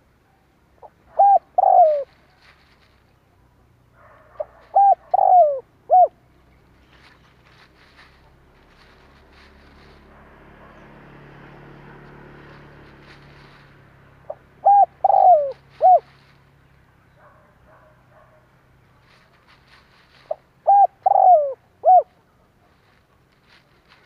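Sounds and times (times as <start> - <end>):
dove cooing: 0.8 - 2.8, 4.1 - 6.3, 14.2 - 16.4, 19.1 - 22.9.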